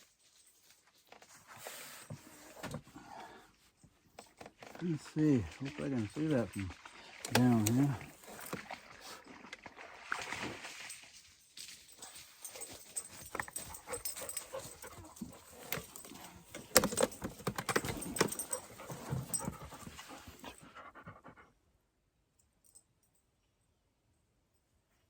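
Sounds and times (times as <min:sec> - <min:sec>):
dog panting: 0:12.4 - 0:17.2, 0:17.8 - 0:21.5.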